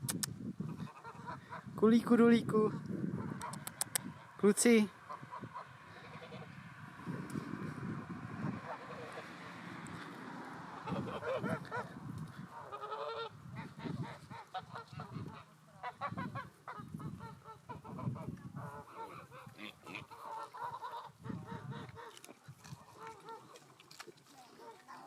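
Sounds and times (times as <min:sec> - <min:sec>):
geese honking: 0:00.7 - 0:01.7, 0:05.0 - 0:06.6, 0:10.5 - 0:11.9, 0:12.5 - 0:22.2.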